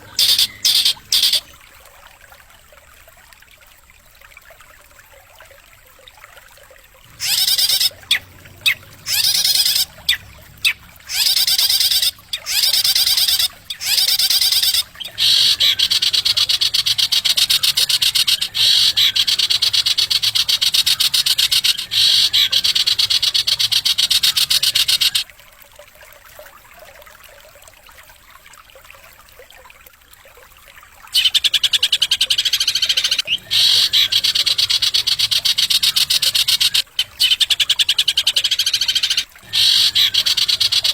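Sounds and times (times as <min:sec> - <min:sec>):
songbird song with buzzing trills: 0:00.0 - 0:01.6, 0:07.2 - 0:25.2, 0:31.2 - 0:40.9.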